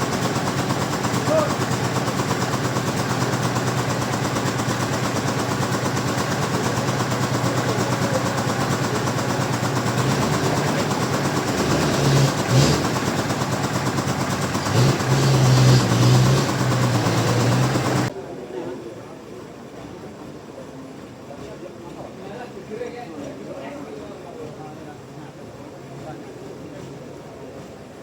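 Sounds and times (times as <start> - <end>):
sawmill machinery engine humming: 0.0 - 18.1.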